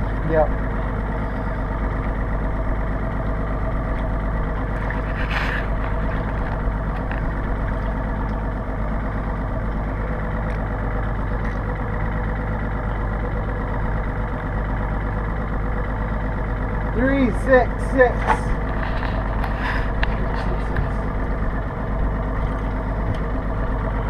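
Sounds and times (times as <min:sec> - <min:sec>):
boat engine idling: 0:00.0 - 0:24.0.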